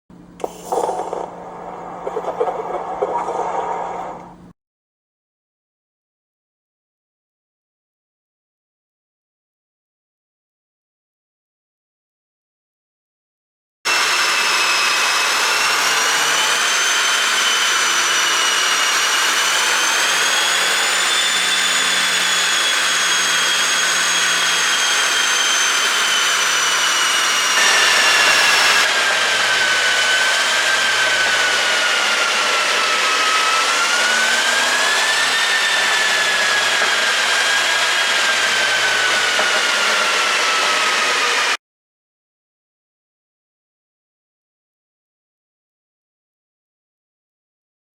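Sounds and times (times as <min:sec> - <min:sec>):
loud high-pitched whine: 0:13.9 - 0:41.6.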